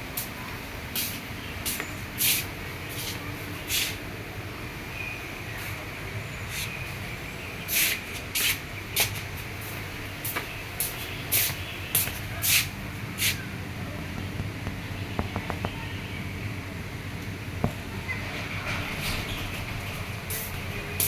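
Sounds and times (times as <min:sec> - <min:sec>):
short sharp hissing bursts: 0:02.2 - 0:02.5.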